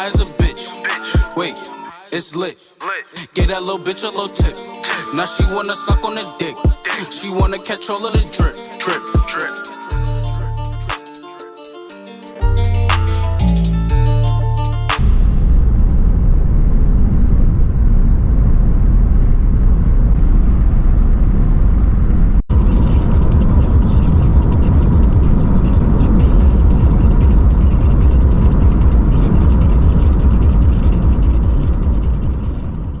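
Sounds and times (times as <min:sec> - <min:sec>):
car engine and exhaust rumble: 0:12.5 - 0:33.0
exhaust crackle: 0:15.0 - 0:33.0.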